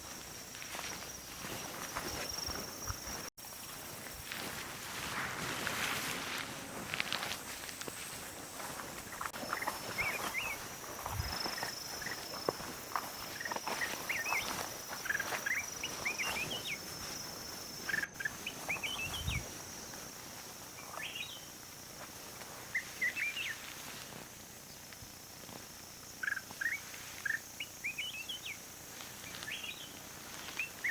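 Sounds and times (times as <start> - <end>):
high insect drone: 0.0 - 30.9
small birds chirping: 7.9 - 30.9.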